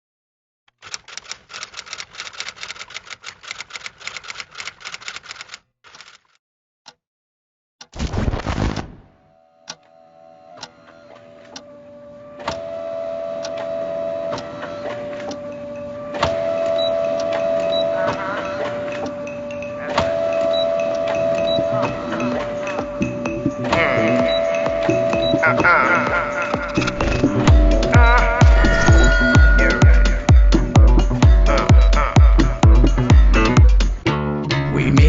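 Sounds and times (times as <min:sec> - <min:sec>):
typing on keys: 0:00.7 - 0:06.4
regular ticking: 0:00.7 - 0:07.0, 0:12.4 - 0:34.0
hum-like tone: 0:09.0 - 0:32.9.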